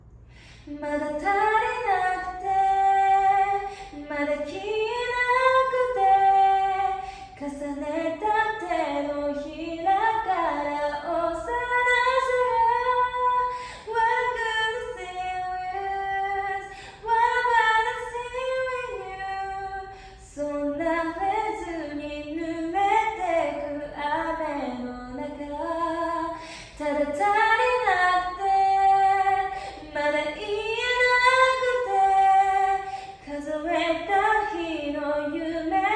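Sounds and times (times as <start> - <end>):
woman singing a cappella: 0.3 - 35.9.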